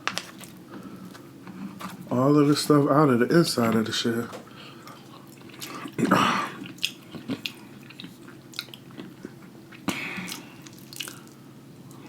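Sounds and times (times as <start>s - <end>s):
chewing with wet smacks: 4.8s - 12.0s.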